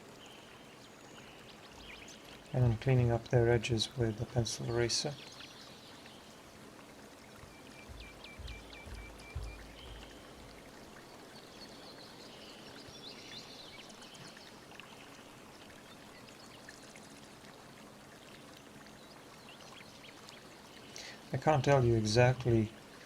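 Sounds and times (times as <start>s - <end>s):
flowing water: 0.0s - 23.0s
small birds chirping: 0.1s - 3.0s, 3.6s - 6.5s, 7.1s - 17.0s, 18.4s - 22.7s.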